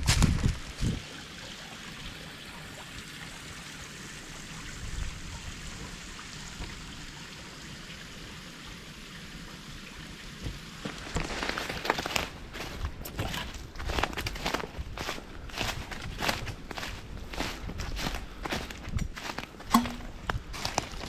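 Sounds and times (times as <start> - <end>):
creek water flowing: 0.6 - 21.0
footsteps on forest floor: 10.8 - 21.0.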